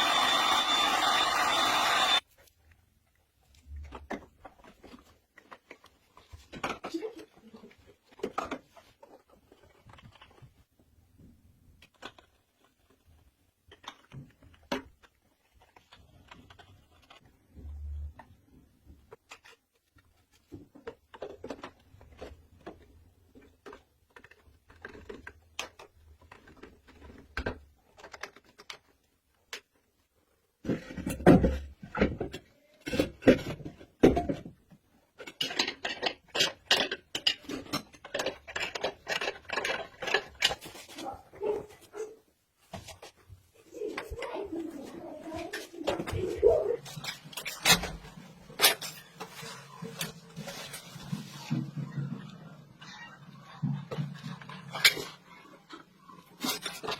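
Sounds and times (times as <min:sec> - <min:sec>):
hard objects clicking and knocking: 0:30.6 - 0:41.6.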